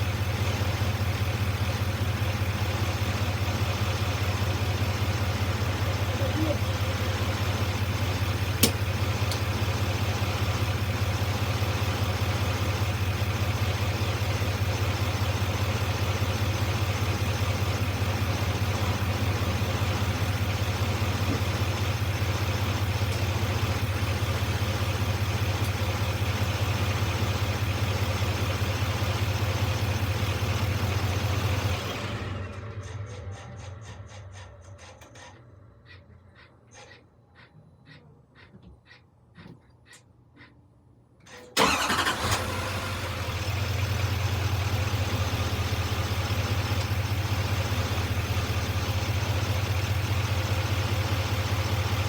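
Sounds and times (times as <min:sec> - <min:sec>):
vehicle engine idling: 0:00.0 - 0:39.7, 0:41.6 - 0:52.0
sharp click: 0:08.6 - 0:09.4.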